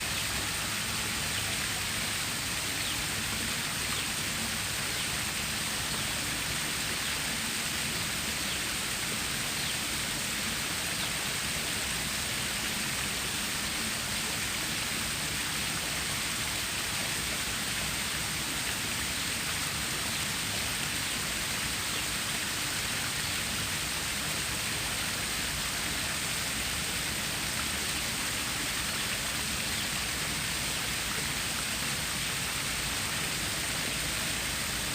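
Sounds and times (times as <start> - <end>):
water rushing over rocks: 0.0 - 34.9.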